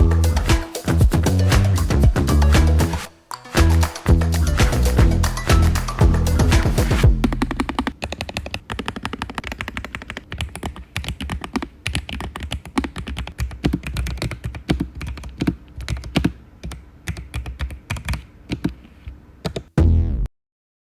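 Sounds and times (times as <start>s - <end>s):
mechanical keyboard typing: 7.4s - 18.7s.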